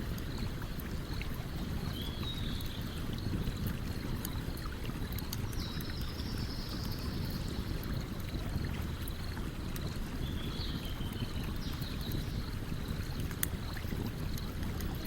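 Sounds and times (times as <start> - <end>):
campfire crackling: 11.5 - 15.0.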